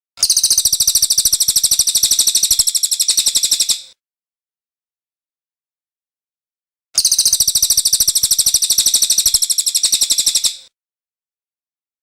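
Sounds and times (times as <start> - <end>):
songbird trilling: 0.2 - 3.9, 7.0 - 10.7.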